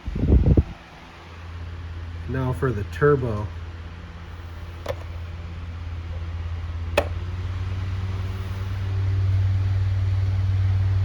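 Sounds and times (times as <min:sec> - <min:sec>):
table fan air rush and hum: 0:03.7 - 0:10.3.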